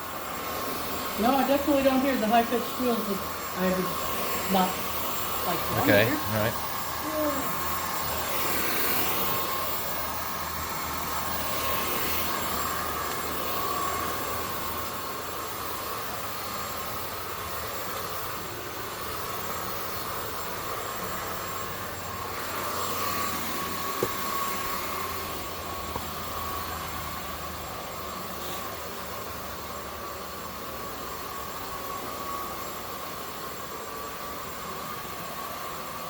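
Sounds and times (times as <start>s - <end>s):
vacuum cleaner motor whine: 0.0s - 36.0s.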